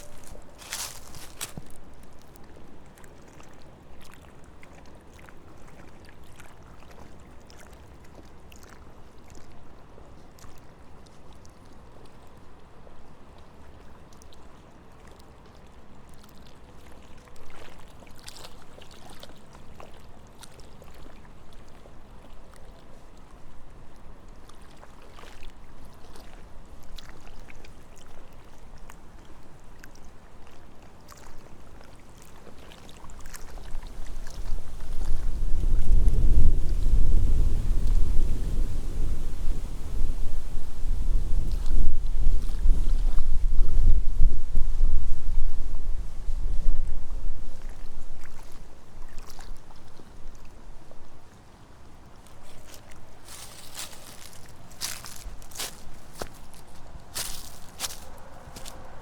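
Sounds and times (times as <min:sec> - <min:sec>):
light clicks and crunches: 0:00.0 - 0:01.8
wind on microphone: 0:33.2 - 0:50.4.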